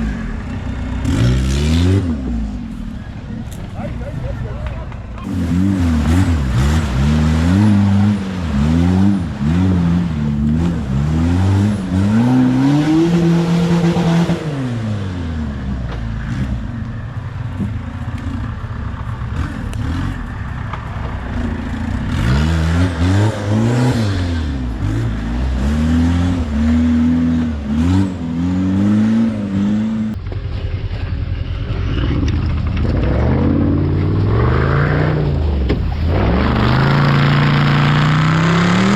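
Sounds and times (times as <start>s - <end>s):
vehicle engine revving hard: 0.0s - 2.8s, 5.2s - 16.8s, 21.3s - 30.2s, 32.0s - 38.9s.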